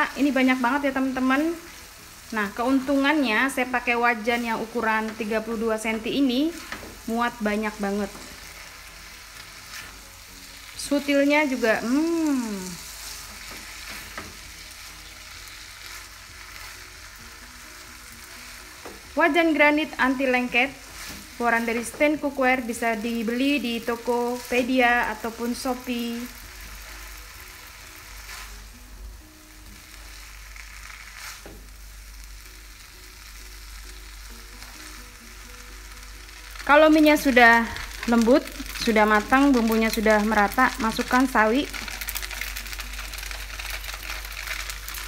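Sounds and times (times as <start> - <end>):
faint background melody: 0.0 - 45.0
noodles sizzling in a wok: 0.0 - 45.0
spatula scraping wok: 0.1 - 32.2
spatula strokes: 28.1 - 28.8, 30.1 - 31.6.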